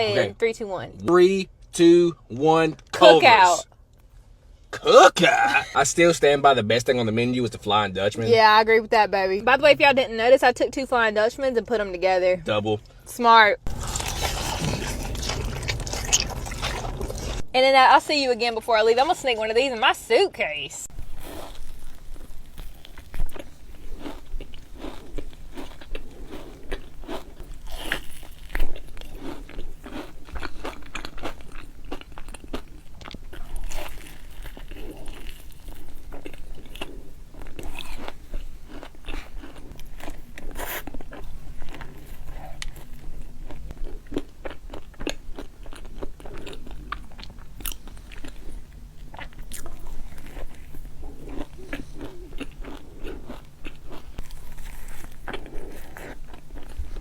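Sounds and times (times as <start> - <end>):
crunchy bites and chewing: 13.7 - 17.5, 20.9 - 57.0.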